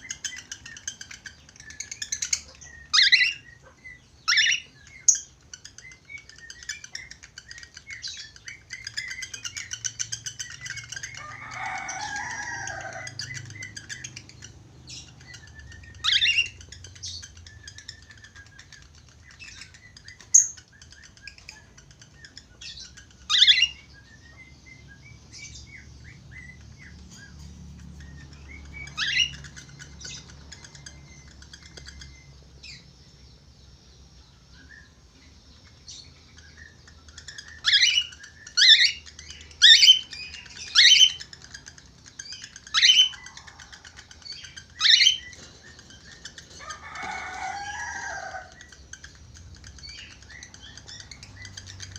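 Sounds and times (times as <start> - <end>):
shrill bird calls: 0.0 - 14.4, 36.4 - 49.1
budgerigars chattering and warbling: 0.0 - 51.9.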